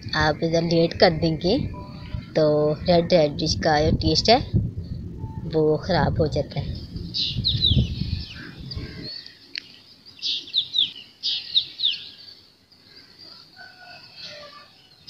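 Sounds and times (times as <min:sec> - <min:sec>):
low rumble: 0:00.8 - 0:09.2
small birds chirping: 0:06.4 - 0:15.0.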